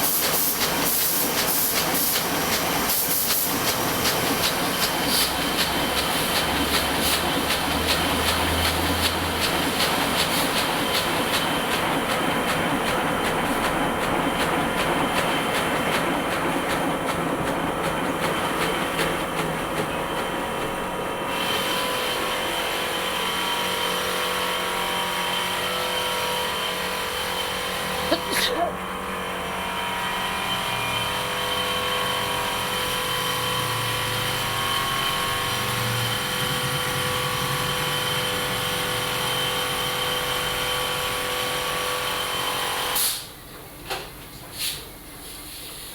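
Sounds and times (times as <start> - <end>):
printing press clattering: 0.0 - 21.4.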